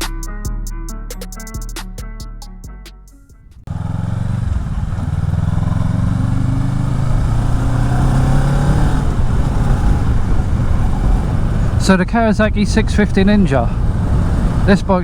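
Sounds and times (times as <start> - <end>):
motorcycle engine running: 3.4 - 12.0, 12.9 - 15.0
steady rushing noise: 3.7 - 15.0.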